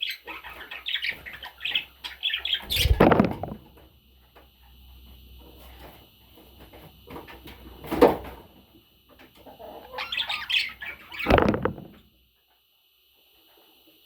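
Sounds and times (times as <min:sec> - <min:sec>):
wings flapping: 0:02.7 - 0:03.6, 0:11.2 - 0:12.0
rustling: 0:11.3 - 0:12.1.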